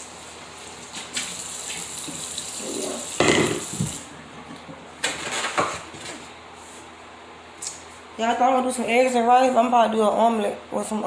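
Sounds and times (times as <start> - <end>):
tap water running into sink: 0.8 - 4.1.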